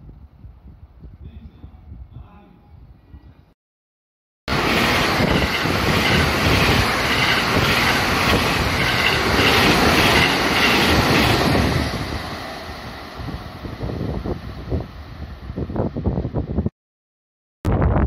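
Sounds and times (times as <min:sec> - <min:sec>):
train wheels rushing on rails: 0:04.5 - 0:16.1.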